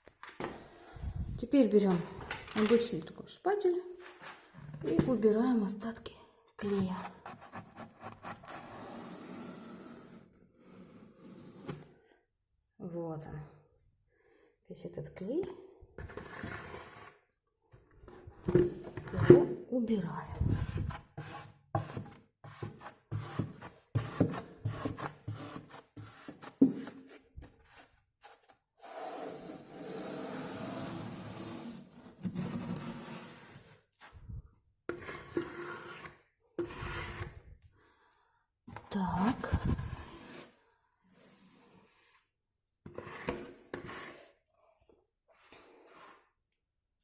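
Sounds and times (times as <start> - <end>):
spatula scraping wallpaper: 6.7 - 11.9, 16.0 - 17.3, 20.3 - 34.2, 34.9 - 37.5, 38.9 - 46.4.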